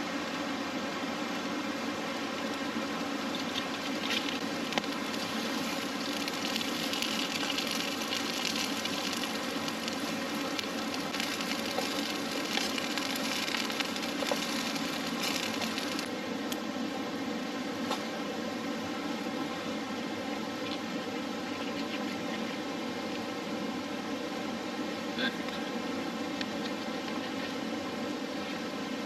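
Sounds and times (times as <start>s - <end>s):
night background hiss: 0.0s - 29.0s
campfire crackling and popping: 3.2s - 16.1s.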